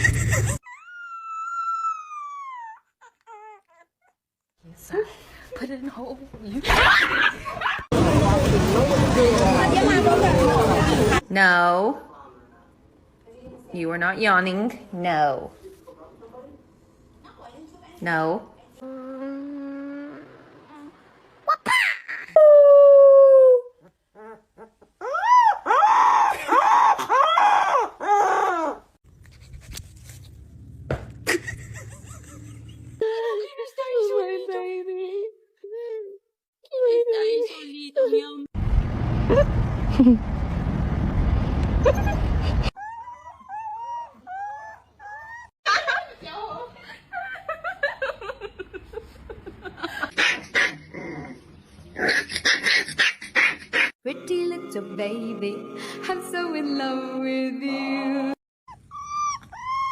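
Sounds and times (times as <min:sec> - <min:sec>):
dog whining: 0:00.6 - 0:04.2, 0:22.1 - 0:28.9, 0:41.9 - 0:45.6, 0:58.7 - 0:59.9
dog yipping: 0:24.2 - 0:28.8, 0:41.9 - 0:45.5, 0:58.7 - 0:59.9
dog howling: 0:58.7 - 0:59.9.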